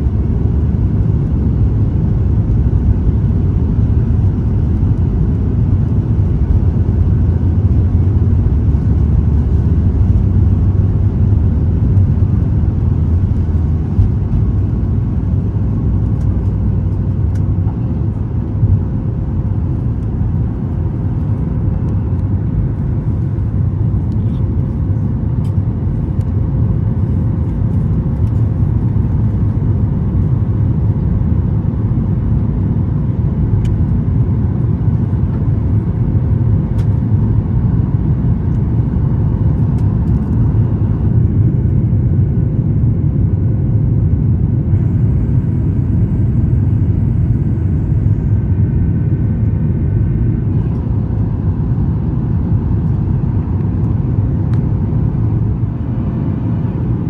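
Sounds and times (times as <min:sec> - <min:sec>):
jet engine rumble in cabin: 0:00.0 - 0:57.0
faint steady hum: 0:33.5 - 0:57.0.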